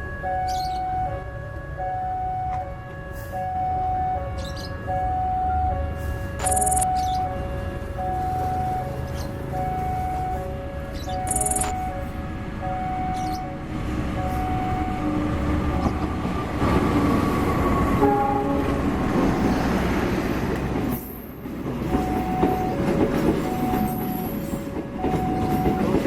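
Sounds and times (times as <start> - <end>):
two-note alarm tone: 6.4 - 8.4, 11.1 - 13.4.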